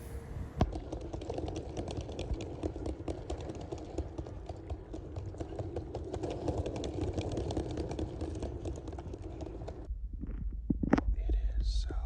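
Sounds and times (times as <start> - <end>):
rapid clicking and rattling: 0.7 - 9.9
low rumble: 9.9 - 12.0.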